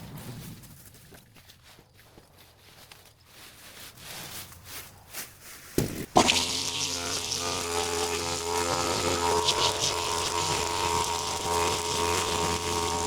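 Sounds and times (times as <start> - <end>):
small engine buzzing: 6.1 - 13.0.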